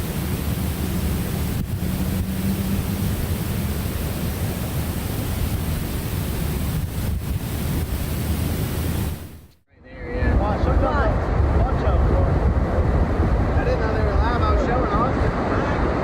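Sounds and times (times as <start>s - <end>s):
rushing noise with low rumble: 0.0s - 16.0s.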